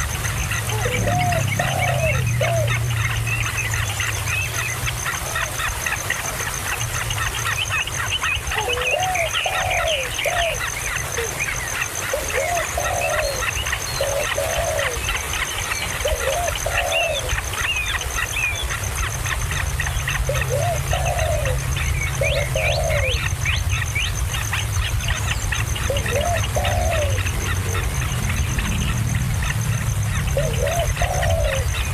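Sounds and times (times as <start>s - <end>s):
birds chirping: 0.0s - 31.9s
lower arched bird call: 0.0s - 31.9s
steady low rumble: 17.3s - 31.9s.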